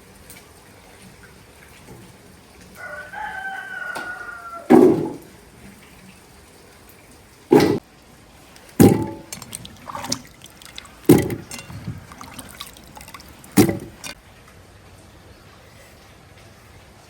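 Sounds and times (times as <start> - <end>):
sharp knocks: 4.7 - 5.2, 8.8 - 10.2, 11.1 - 12.6, 13.6 - 14.2
faint clatters: 8.6 - 14.2.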